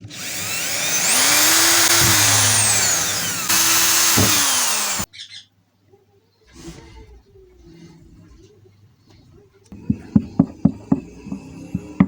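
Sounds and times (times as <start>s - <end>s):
power tool motor running: 0.0s - 5.1s.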